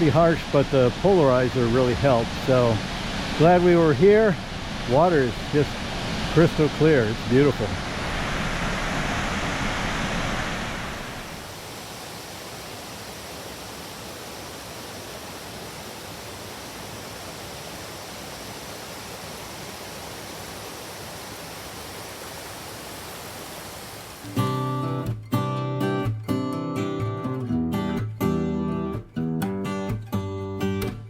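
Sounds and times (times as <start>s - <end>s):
waterfall and river rushing: 0.0s - 24.8s
acoustic guitar music: 24.3s - 31.0s.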